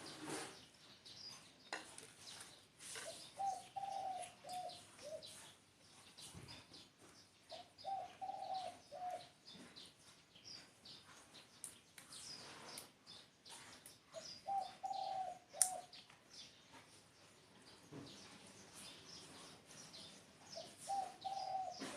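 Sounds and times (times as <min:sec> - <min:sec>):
small birds chirping: 0:00.0 - 0:21.9
dove cooing: 0:03.0 - 0:05.4, 0:07.5 - 0:09.4, 0:14.2 - 0:16.0, 0:20.6 - 0:21.9.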